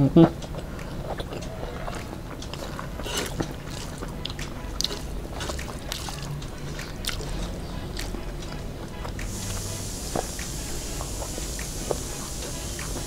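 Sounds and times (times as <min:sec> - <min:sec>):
wet chewing and lip-smacks: 0:00.2 - 0:13.0
fingers squishing rice: 0:00.8 - 0:13.0.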